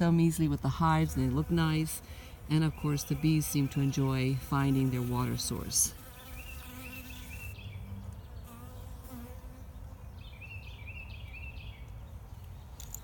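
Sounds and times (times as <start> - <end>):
honey bees buzzing: 0.0 - 10.2.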